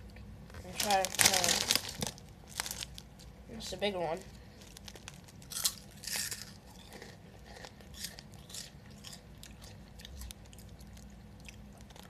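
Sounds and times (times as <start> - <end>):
crunchy snack chewing: 4.6 - 12.0.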